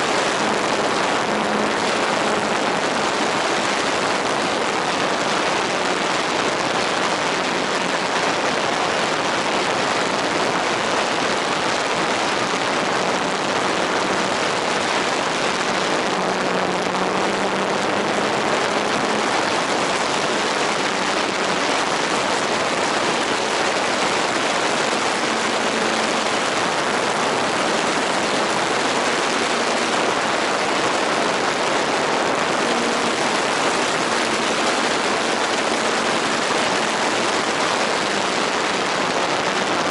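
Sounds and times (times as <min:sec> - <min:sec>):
faint motor hum: 0:00.0 - 0:38.9.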